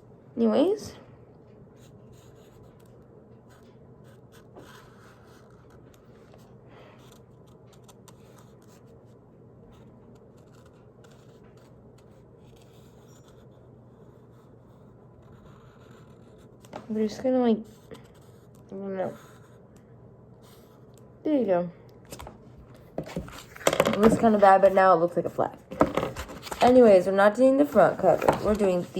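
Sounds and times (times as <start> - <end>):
marker scratching on paper: 1.8 - 2.9, 3.5 - 6.4, 9.7 - 19.6, 26.0 - 28.9.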